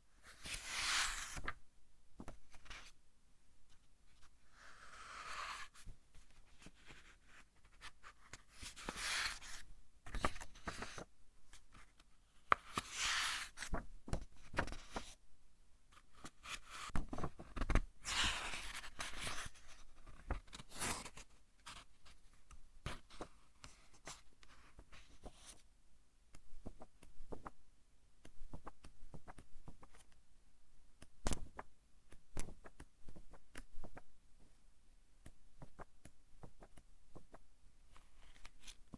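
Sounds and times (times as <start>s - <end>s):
book pages turning: 0.5s - 1.5s.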